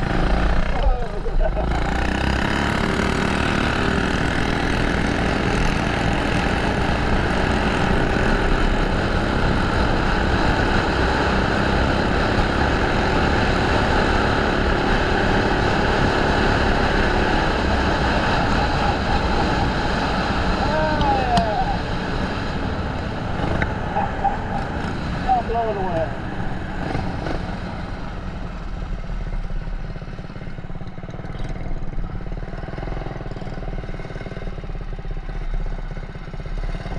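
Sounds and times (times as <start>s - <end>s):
mini bike engine running: 0.0s - 28.0s, 28.6s - 36.9s
wind on microphone: 13.4s - 28.0s.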